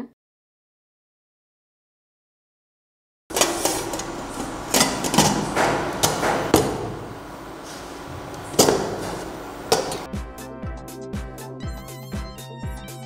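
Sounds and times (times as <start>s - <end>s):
metal lid clanking and clicking: 3.3s - 10.1s.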